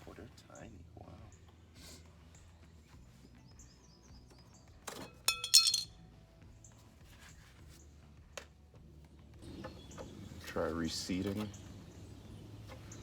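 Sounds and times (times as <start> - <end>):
metal parts clinking on hard surface: 5.3 - 5.9.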